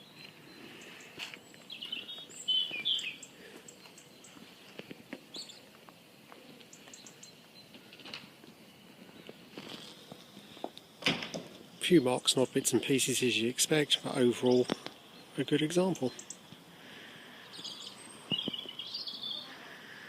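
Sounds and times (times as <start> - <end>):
birds chirping: 0.0 - 20.0
short high bird calls: 0.5 - 4.4.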